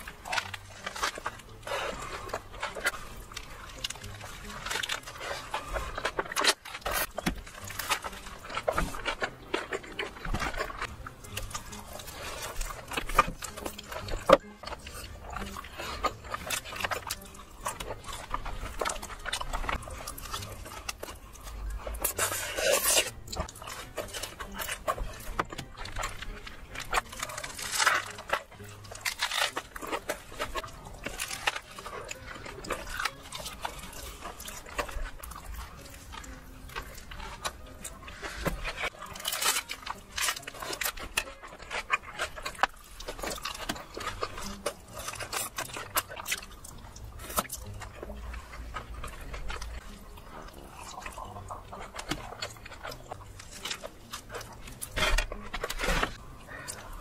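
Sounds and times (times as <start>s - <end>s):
wet chewing: 0.0s - 57.0s.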